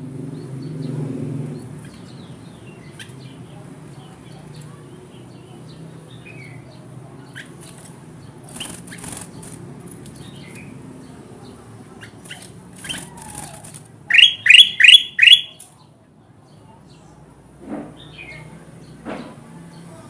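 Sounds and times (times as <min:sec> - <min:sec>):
bird chirping: 0:00.2 - 0:15.9.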